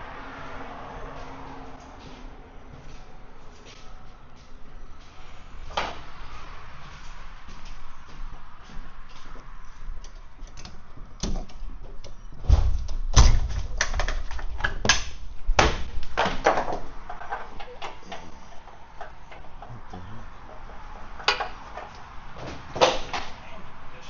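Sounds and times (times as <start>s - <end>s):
knocks and clanks: 10.0s - 19.8s
heavy thuds: 11.7s - 13.8s.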